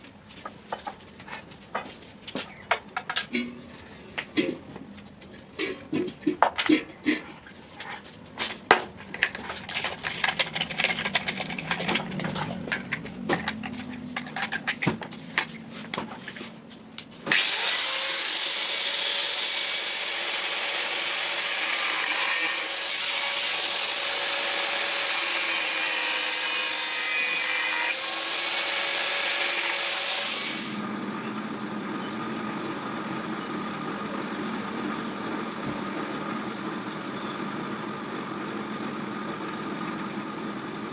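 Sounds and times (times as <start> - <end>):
power tool running: 17.3 - 31.0.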